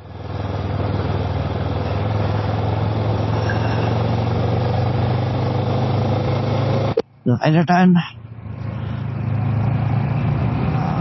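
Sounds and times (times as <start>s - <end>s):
motorcycle engine running: 0.0s - 7.0s
wind and road noise: 0.0s - 11.0s.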